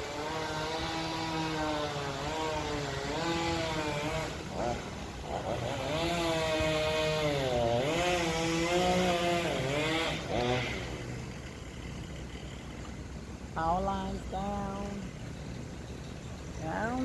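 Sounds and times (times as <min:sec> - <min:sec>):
chainsaw revving cutting wood: 0:00.0 - 0:12.9.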